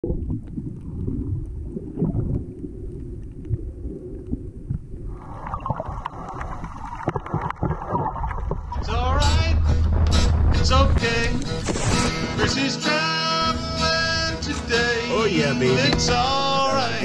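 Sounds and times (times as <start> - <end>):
wind and water rumble: 0.0 - 12.5.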